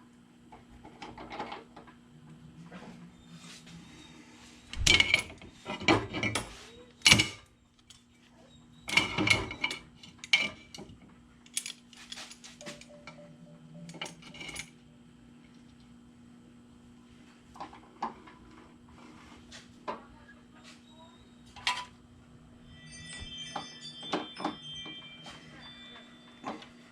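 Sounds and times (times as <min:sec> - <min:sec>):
metal tools clanking: 0:13.8 - 0:14.8.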